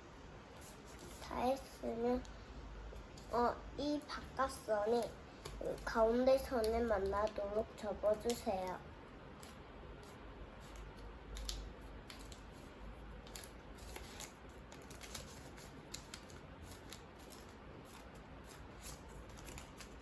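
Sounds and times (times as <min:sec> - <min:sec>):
paper being folded and creased: 0:09.4 - 0:20.0.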